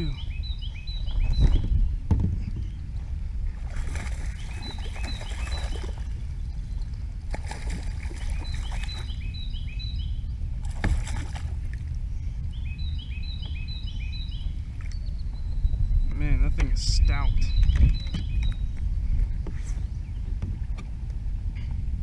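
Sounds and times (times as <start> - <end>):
bird singing chirps: 0.0 - 2.9, 4.0 - 10.5, 12.2 - 18.9
low rumble of wind or water: 0.0 - 22.0.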